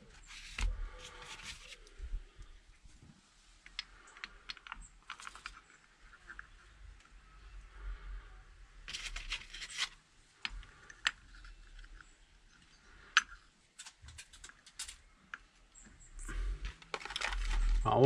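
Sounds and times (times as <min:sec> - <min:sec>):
scraping and rustling: 0:00.0 - 0:07.1, 0:08.8 - 0:15.0, 0:16.3 - 0:18.0
metal tools clicking and tapping: 0:13.2 - 0:15.4.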